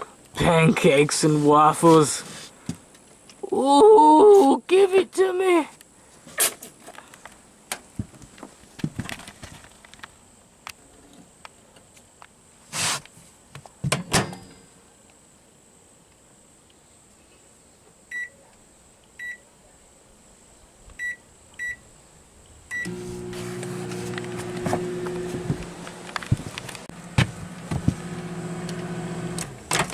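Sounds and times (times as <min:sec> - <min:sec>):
keypad beeps: 0:21.0 - 0:21.8
microwave oven humming: 0:22.7 - 0:29.9
handling knocks: 0:23.9 - 0:28.2.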